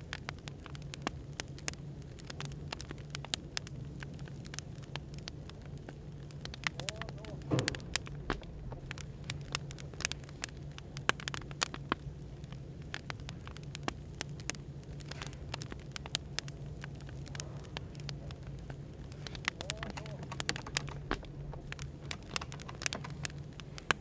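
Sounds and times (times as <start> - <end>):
firewood crackling and popping: 11.9 - 24.0.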